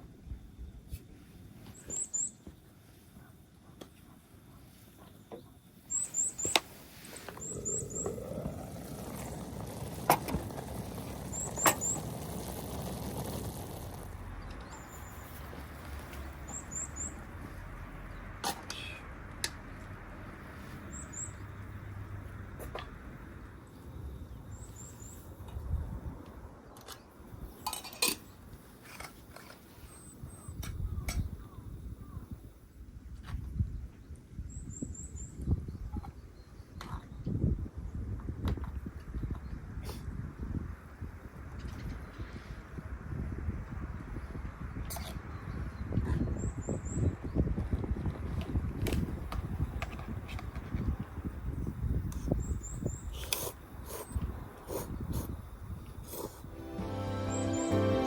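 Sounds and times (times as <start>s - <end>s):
small bird chirping: 5.1s - 9.7s, 11.0s - 12.6s.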